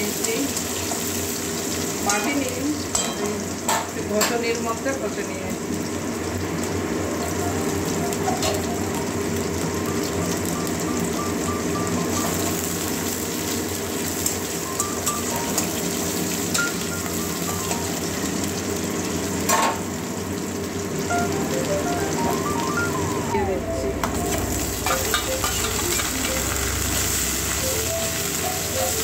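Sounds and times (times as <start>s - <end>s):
onions sizzling in hot oil: 0.0s - 29.0s
soft background music: 7.2s - 18.8s, 21.1s - 29.0s.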